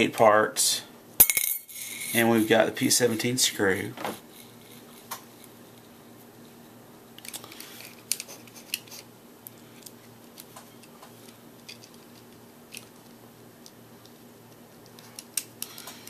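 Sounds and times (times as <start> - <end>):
small plastic parts clicking: 7.2 - 9.0, 9.7 - 16.0.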